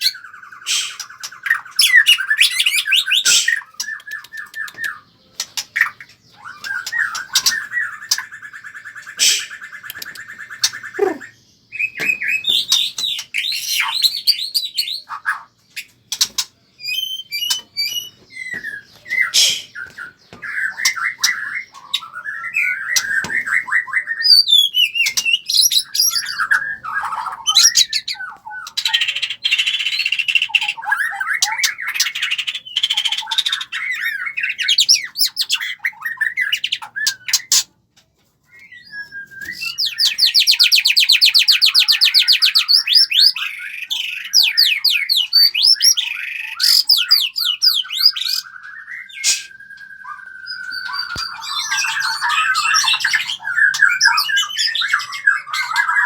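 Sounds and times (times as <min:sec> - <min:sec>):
caged birds chirping and squawking: 0:00.0 - 0:56.0
sharp clicks: 0:03.3 - 0:05.8, 0:09.2 - 0:10.3.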